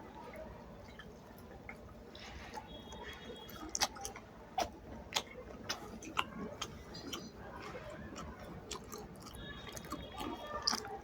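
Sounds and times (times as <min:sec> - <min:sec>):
person chewing food: 0:00.8 - 0:11.0
wet smacking and mouth clicks: 0:03.5 - 0:11.0.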